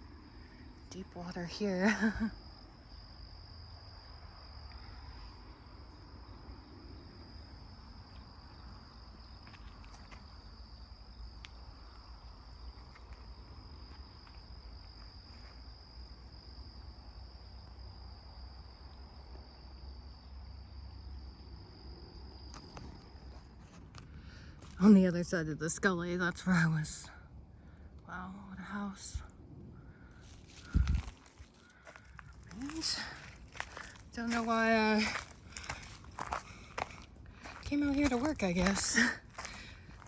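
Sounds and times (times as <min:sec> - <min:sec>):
insects trilling: 0:00.0 - 0:40.0
faint low rumble: 0:26.4 - 0:40.0.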